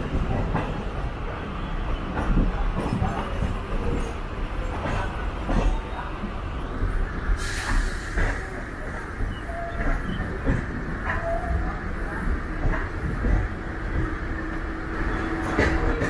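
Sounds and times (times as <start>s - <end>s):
train wheels rumbling on rail: 0.0s - 16.0s
track clicks and knocks: 15.0s - 16.0s.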